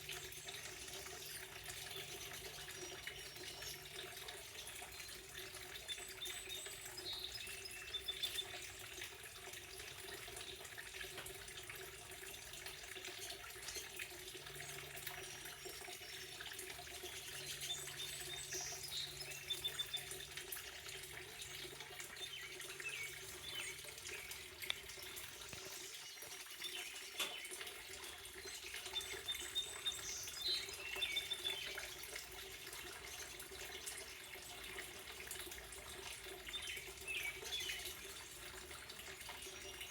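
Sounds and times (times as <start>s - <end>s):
running water: 0.0s - 39.9s
small birds chirping: 0.1s - 9.1s, 15.2s - 20.4s, 21.0s - 35.0s, 36.1s - 38.5s.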